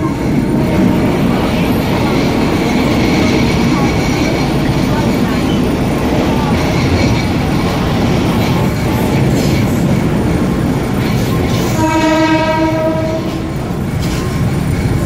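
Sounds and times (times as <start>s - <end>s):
train wheels rumbling and clattering: 0.0s - 15.0s
train horn blast: 11.7s - 13.6s.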